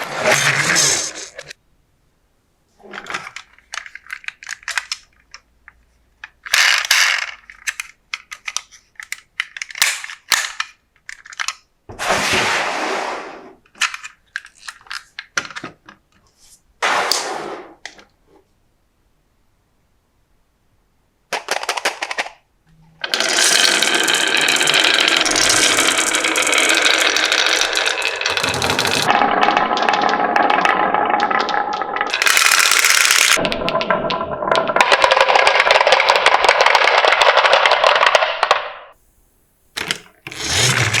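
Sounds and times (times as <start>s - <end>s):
marbles rattling down a track: 23.0s - 38.2s.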